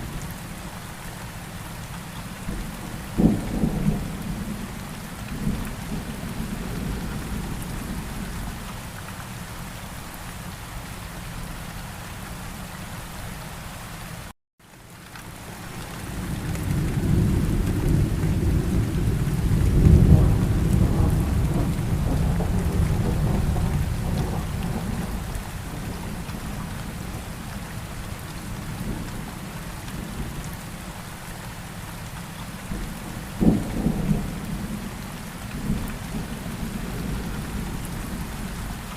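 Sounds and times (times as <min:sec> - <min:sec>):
steady rain: 0:00.0 - 0:38.9
rolling thunder: 0:02.5 - 0:04.7, 0:16.2 - 0:27.3, 0:32.7 - 0:38.5.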